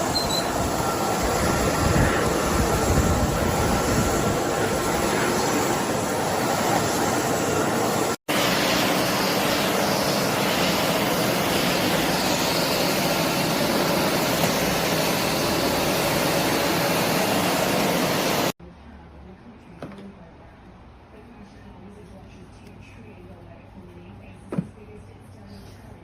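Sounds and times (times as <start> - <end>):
vacuum cleaner running: 0.0 - 18.6.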